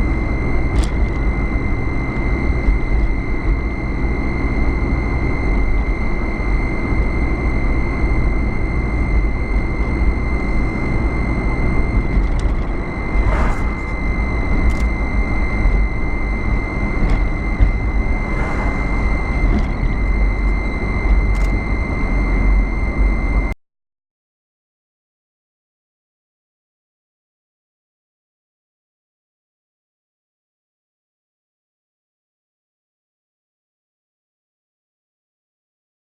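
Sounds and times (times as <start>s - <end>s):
car engine and road noise: 0.0s - 23.6s
high-pitched whine: 0.0s - 23.6s.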